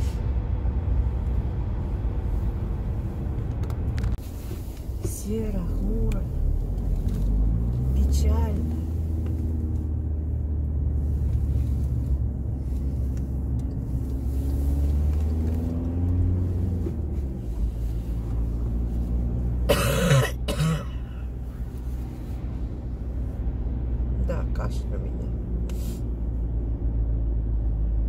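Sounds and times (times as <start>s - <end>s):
car cabin rumble: 0.0s - 28.0s
person coughing: 19.7s - 21.2s.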